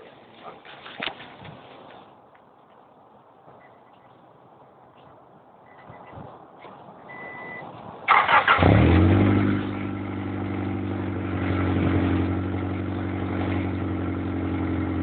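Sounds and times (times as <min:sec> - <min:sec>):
car engine starting and idling: 0:07.0 - 0:15.0.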